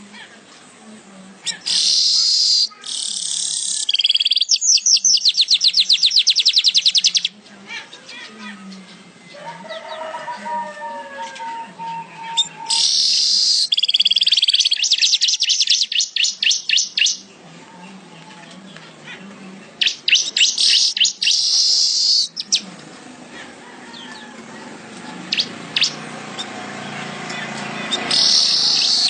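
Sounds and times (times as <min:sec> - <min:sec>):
weaver bird singing: 0:01.4 - 0:09.0, 0:11.8 - 0:17.4, 0:19.8 - 0:22.8, 0:25.3 - 0:29.0.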